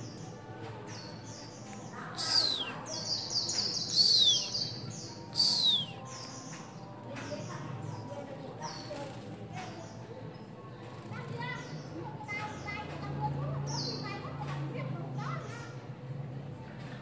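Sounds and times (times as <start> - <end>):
small bird chirping: 1.0 - 6.8
downward sliding bird calls: 2.2 - 2.9.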